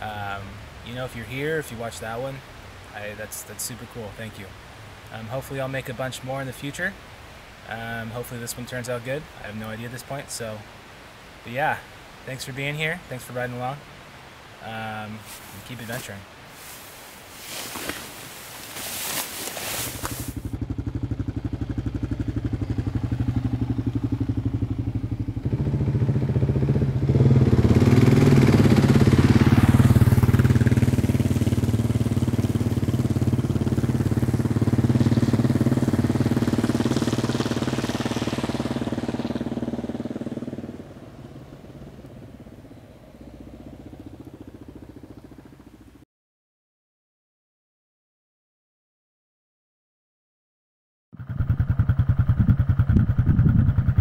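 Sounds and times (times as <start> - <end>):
motorcycle engine running: 17.5 - 46.0, 51.2 - 54.0.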